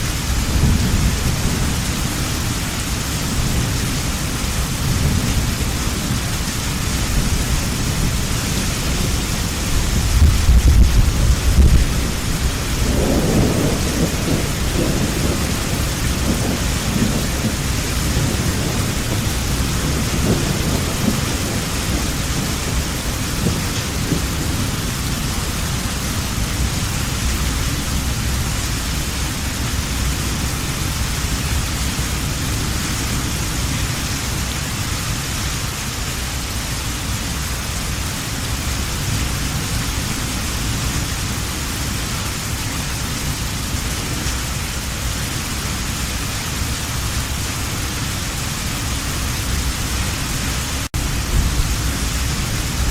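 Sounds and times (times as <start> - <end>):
thunder rumbling: 0.0 - 34.5, 46.5 - 52.9
heavy rain falling: 0.0 - 52.9.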